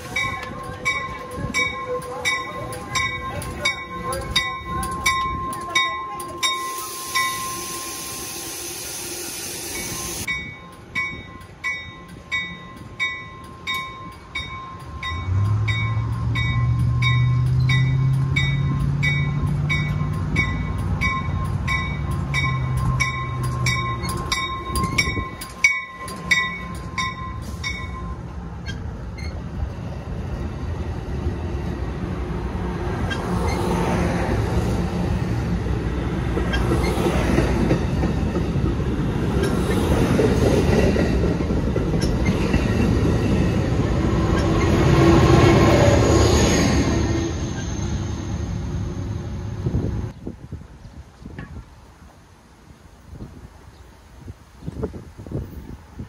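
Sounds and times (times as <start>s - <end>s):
train rolling past: 0.0s - 52.2s
bell ringing: 0.2s - 8.0s, 9.7s - 28.2s.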